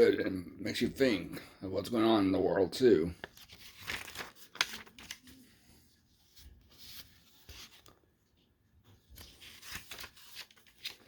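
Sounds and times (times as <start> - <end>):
paper rustling: 3.0 - 11.0.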